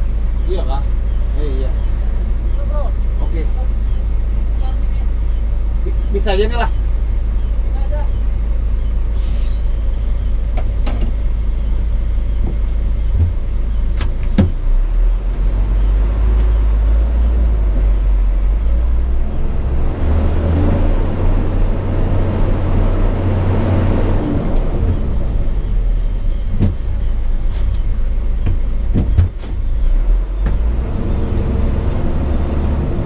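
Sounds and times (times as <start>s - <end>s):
road noise: 0.0s - 33.0s
truck diesel engine drone: 0.0s - 33.0s
sharp clicks: 5.3s - 32.9s.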